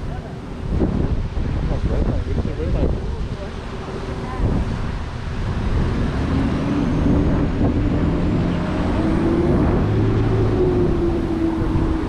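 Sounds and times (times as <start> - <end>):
low traffic rumble: 0.0 - 12.0
vehicle passing close by: 3.5 - 12.0.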